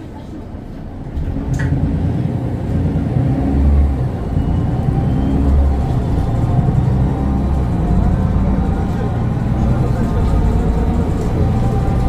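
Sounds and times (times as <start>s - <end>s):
diesel bus engine pulling hard: 0.0s - 12.0s.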